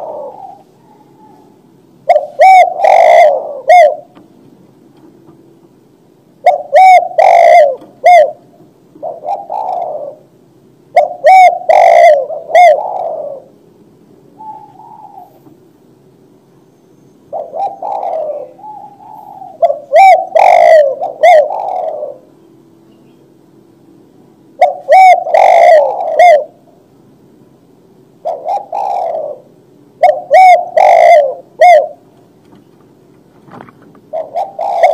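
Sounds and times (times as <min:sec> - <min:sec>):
dove cooing: 0:00.0 - 0:04.2, 0:06.4 - 0:15.6, 0:17.3 - 0:22.4, 0:24.5 - 0:26.8, 0:28.2 - 0:32.2, 0:33.6 - 0:34.9.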